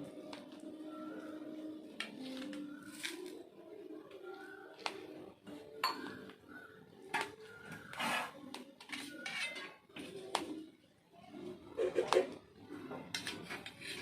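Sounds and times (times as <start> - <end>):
knife clinking and scraping plate: 8.9 - 9.8.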